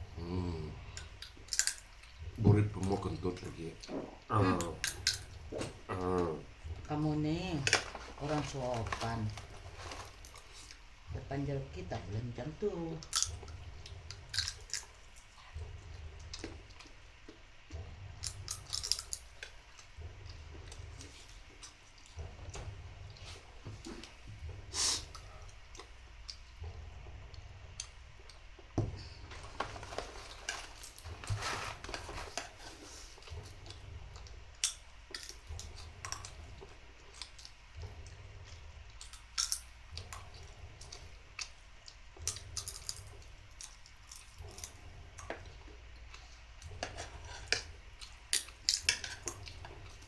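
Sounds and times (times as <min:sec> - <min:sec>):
steady low hum: 0:00.0 - 0:50.0
person chewing: 0:13.0 - 0:17.4, 0:32.7 - 0:50.0.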